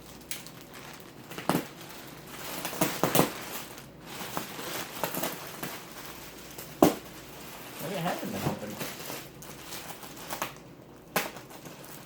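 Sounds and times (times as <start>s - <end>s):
plastic packaging crackling: 0.0s - 12.0s
sharp plastic cracks: 0.2s - 1.8s, 6.8s - 7.2s, 9.8s - 12.0s.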